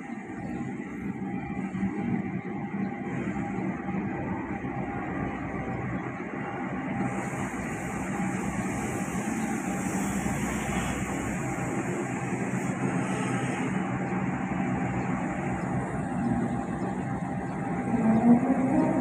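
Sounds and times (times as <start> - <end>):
passenger train rumbling past: 0.0 - 19.0.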